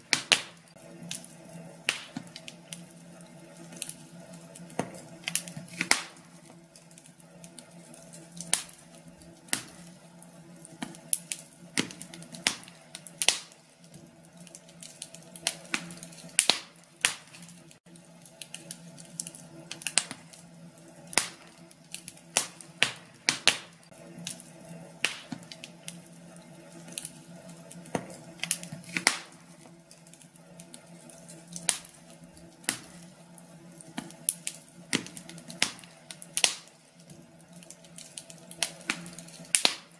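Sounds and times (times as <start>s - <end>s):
steady low hum: 0.0s - 39.9s
wood fire crackling and popping: 0.0s - 39.9s.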